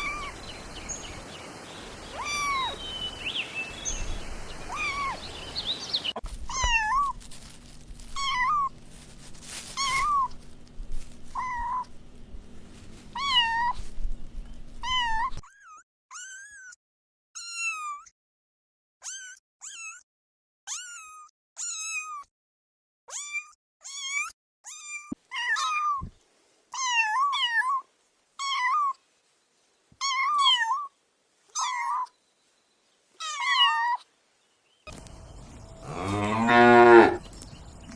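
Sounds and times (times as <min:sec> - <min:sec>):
background hiss: 0:00.0 - 0:06.2, 0:34.1 - 0:37.9
kittens meowing: 0:00.0 - 0:06.7.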